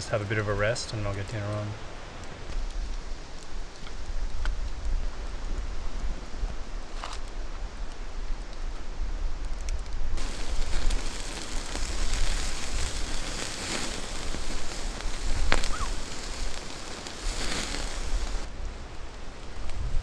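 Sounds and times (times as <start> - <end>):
campfire crackling and hissing: 0.0 - 20.0
sharp fire pop: 10.2 - 18.5.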